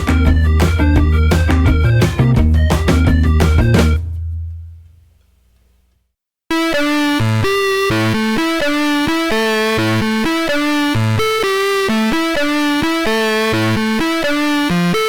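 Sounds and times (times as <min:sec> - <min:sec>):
upbeat synthesizer tune: 0:00.0 - 0:04.1, 0:06.5 - 0:15.0.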